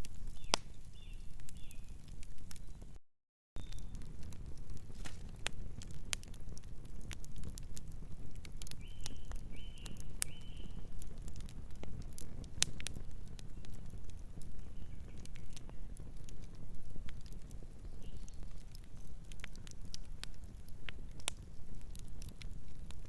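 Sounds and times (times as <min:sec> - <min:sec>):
wood fire crackling: 0:00.0 - 0:03.0, 0:03.6 - 0:23.0
bird chirping: 0:00.3 - 0:02.0.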